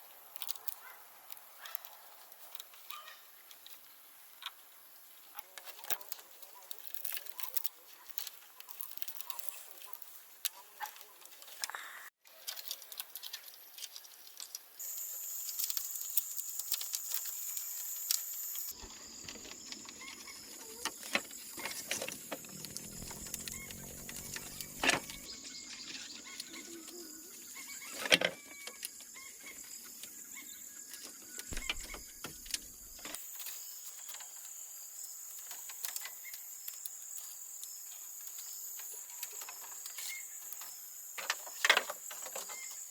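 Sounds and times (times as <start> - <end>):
high-pitched insect-like drone: 21.4 - 25.4.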